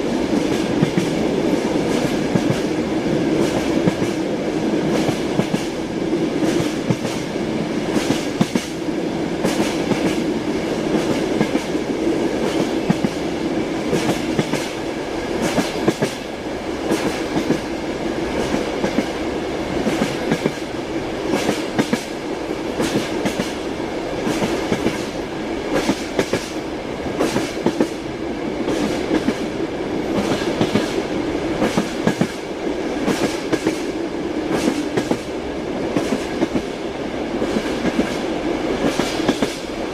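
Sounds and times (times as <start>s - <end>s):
train rolling rumble: 0.0s - 39.9s.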